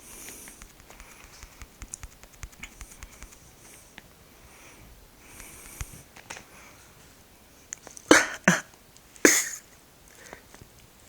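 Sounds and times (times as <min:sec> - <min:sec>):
person coughing: 0:08.1 - 0:08.7, 0:09.3 - 0:09.6.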